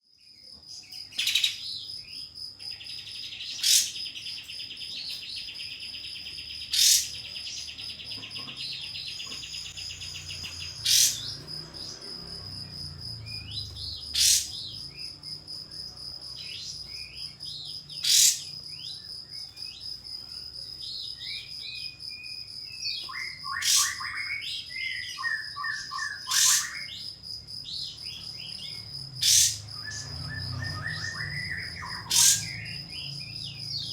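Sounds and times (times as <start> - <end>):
bird chattering trills: 2.7 - 12.0, 13.3 - 15.1, 16.4 - 19.8, 22.9 - 27.1, 27.8 - 33.9
bird whip-like calls: 26.3 - 26.7, 31.8 - 32.5.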